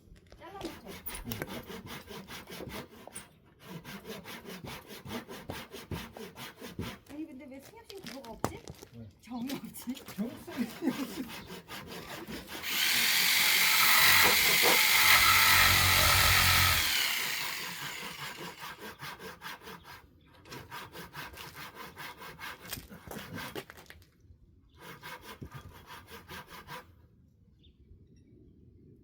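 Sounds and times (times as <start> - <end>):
scraping and rubbing of wood: 10.6 - 24.0
power tool cutting wood: 11.8 - 18.9.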